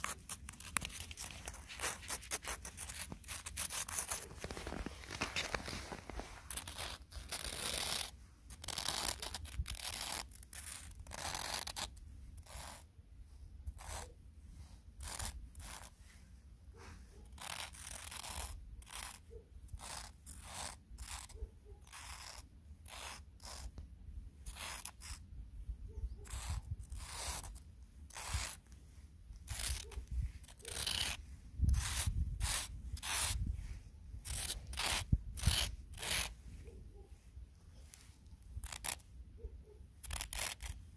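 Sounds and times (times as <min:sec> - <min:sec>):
footsteps crunching in snow: 0:00.0 - 0:06.7.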